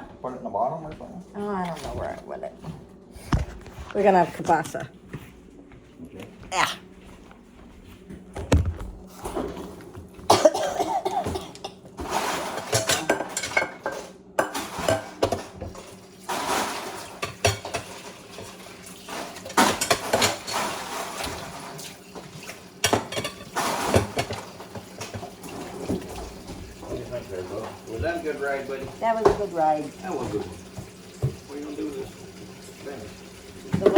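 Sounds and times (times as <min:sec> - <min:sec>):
dishes and cutlery clattering: 0:10.3 - 0:32.2.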